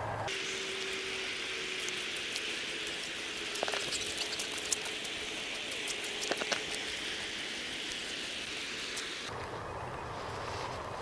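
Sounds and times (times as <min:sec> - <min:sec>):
rain hiss: 0:00.3 - 0:09.3
raindrop ticks: 0:01.8 - 0:09.1.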